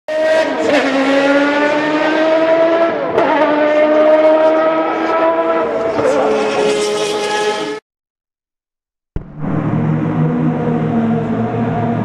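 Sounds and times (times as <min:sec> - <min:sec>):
race car engine at high revs: 0:00.1 - 0:07.8, 0:09.2 - 0:12.0.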